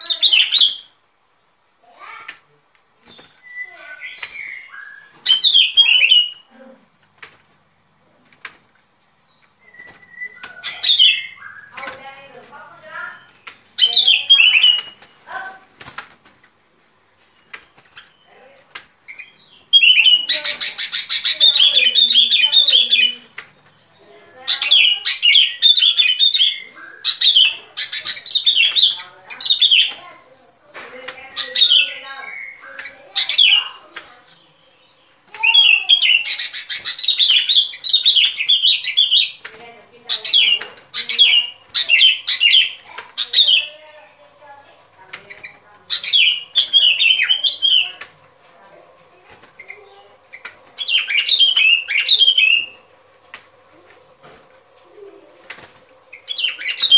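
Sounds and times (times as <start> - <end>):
faint chirps: 0.0 - 56.9
bird call: 2.8 - 6.5, 12.8 - 15.6, 19.1 - 23.3, 45.2 - 48.1, 49.6 - 52.9
bulbul chattering calls: 9.6 - 15.5, 19.0 - 30.2, 30.9 - 48.1, 49.6 - 52.9, 56.1 - 56.9.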